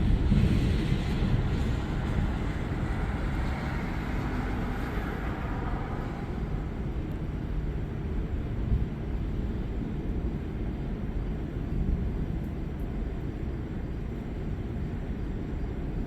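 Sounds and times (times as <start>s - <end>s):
rolling thunder rumble: 0.0s - 7.6s.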